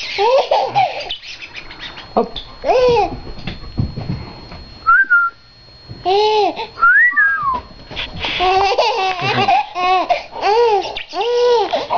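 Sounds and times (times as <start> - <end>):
baby laughing and babbling: 0.1 - 1.1, 8.4 - 11.9.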